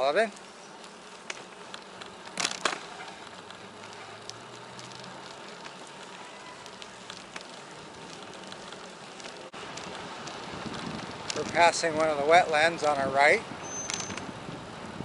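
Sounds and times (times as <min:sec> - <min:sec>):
bicycle tyres rolling on pavement: 0:00.0 - 0:15.0
light crackling ticks: 0:00.2 - 0:14.3
wind noise: 0:09.6 - 0:15.0
sharp clicks: 0:13.6 - 0:14.3.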